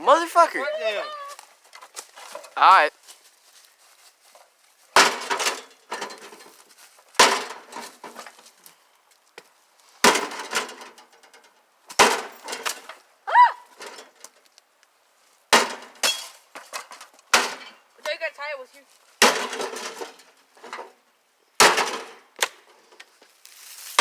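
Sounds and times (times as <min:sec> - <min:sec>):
breaking parts clattering: 0:05.0 - 0:06.5.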